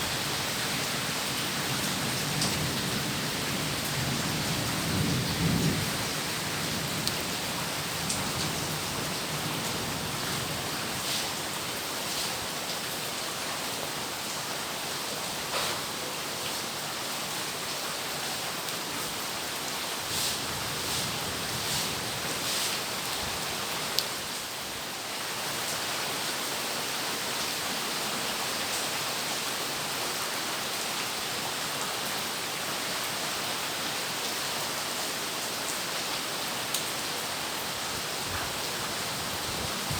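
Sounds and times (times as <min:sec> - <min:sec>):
heavy rain falling: 0:00.0 - 0:39.9
water drips and splashes: 0:18.6 - 0:24.5.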